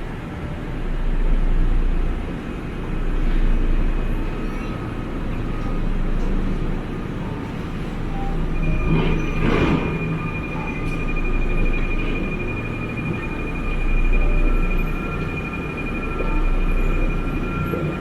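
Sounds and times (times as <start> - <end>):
tram rumbling: 0.0 - 18.0
high steady tone: 6.8 - 18.0.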